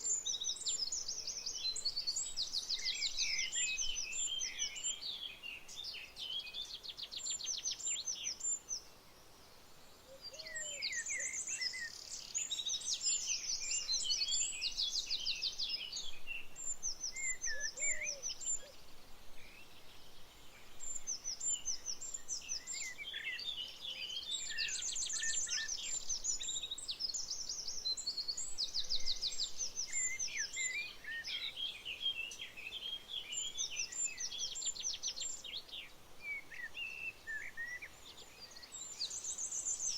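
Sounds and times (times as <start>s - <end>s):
birds singing and calling: 0.0s - 9.0s, 9.9s - 39.9s.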